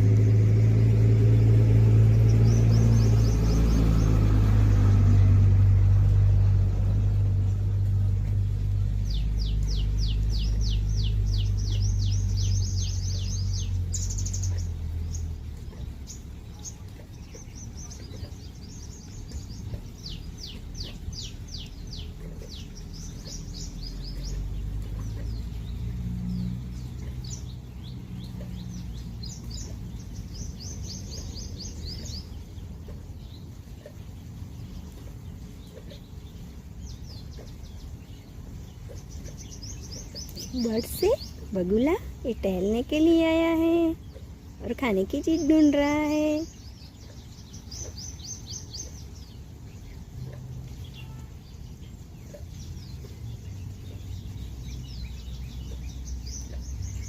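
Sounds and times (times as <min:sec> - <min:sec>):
low engine rumble: 0:00.0 - 0:57.0
songbirds trilling: 0:00.0 - 0:57.0.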